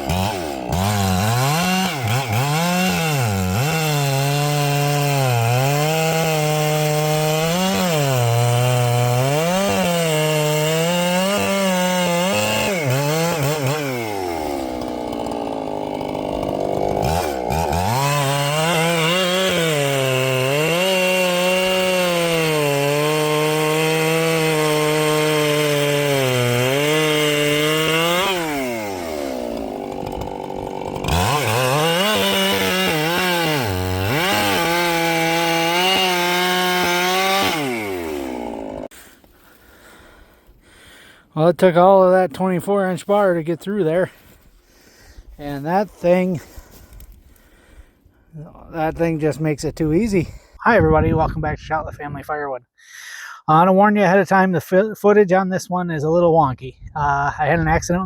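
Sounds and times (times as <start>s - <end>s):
chainsaw cutting at full throttle: 0.0s - 41.4s, 42.7s - 49.3s.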